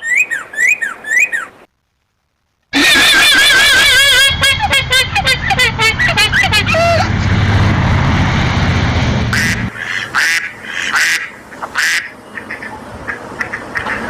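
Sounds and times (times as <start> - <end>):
ducks quacking: 2.8 - 7.2, 9.3 - 14.0
low rumble: 3.7 - 9.7.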